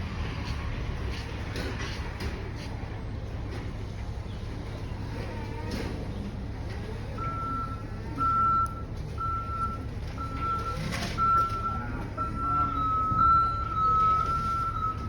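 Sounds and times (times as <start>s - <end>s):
diesel truck engine running: 0.0s - 15.0s
reversing alarm beeping: 7.2s - 15.0s.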